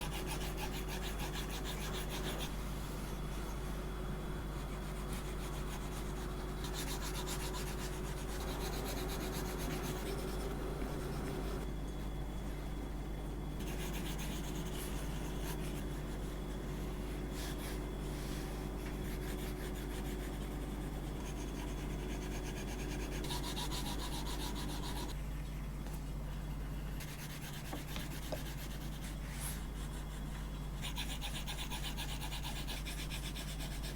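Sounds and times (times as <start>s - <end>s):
steady low hum: 0.0s - 33.9s
stylus scratching on screen: 4.6s - 11.6s.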